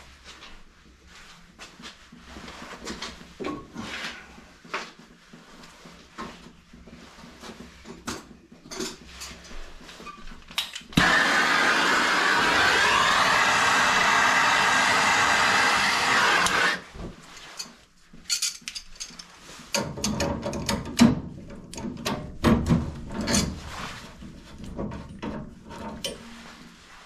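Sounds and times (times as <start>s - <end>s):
machine whirring: 11.0s - 16.8s
hand tools clicking and scraping metal: 14.8s - 16.8s, 17.5s - 20.9s.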